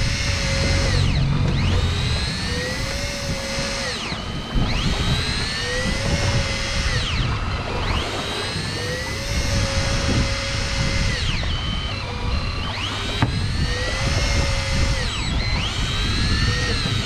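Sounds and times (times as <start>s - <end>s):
low rumble: 0.0s - 7.7s
fishing reel motor whining: 0.0s - 17.0s.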